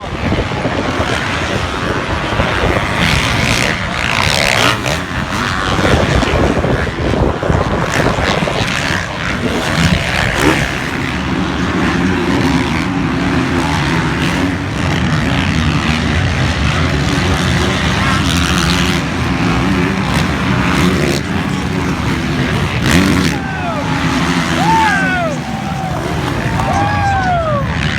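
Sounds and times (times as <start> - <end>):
motocross bike engines: 0.0 - 27.9.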